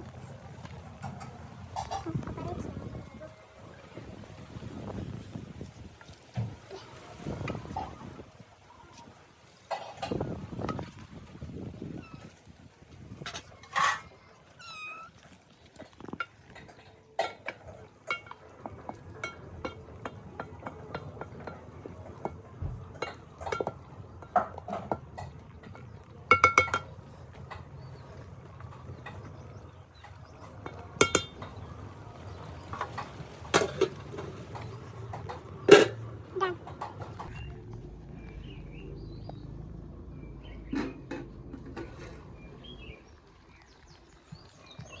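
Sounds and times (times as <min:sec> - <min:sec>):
clinks of pots and dishes: 0:01.0 - 0:02.8, 0:09.7 - 0:10.9, 0:13.2 - 0:14.3, 0:15.8 - 0:28.0, 0:28.9 - 0:31.7, 0:32.6 - 0:37.5, 0:40.6 - 0:42.5.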